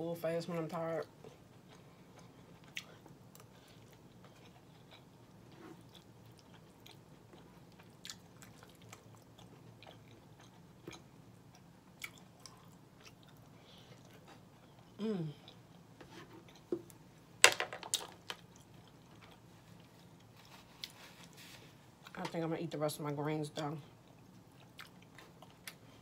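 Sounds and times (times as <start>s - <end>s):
faint chewing of soft food: 1.0s - 17.1s, 18.3s - 22.2s, 23.9s - 26.0s.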